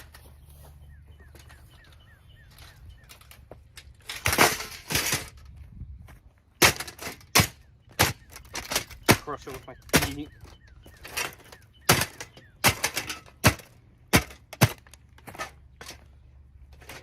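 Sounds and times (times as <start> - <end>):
plastic fan being smashed: 4.0 - 5.4, 6.6 - 9.2, 11.1 - 15.0.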